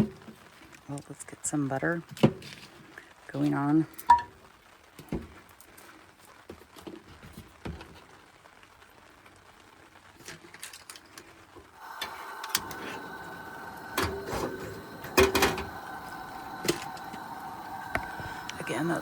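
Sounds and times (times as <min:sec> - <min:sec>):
butter sizzling in a pan: 0:11.4 - 0:19.0
utensils and cookware clicking: 0:13.7 - 0:17.3.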